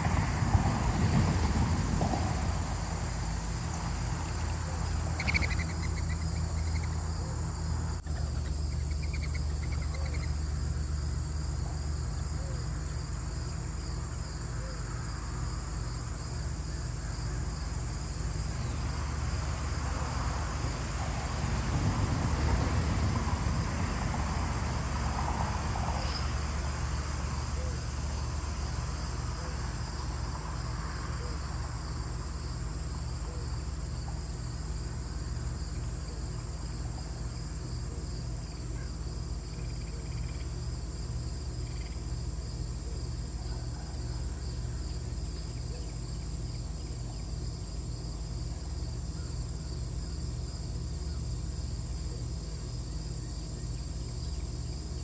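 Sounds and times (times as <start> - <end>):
low steady hum: 0.0 - 20.1
insects chirping: 0.0 - 21.3, 24.3 - 55.0.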